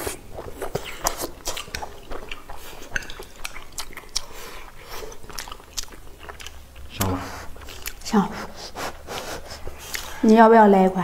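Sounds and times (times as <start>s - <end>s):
people chewing and eating: 0.0s - 10.7s.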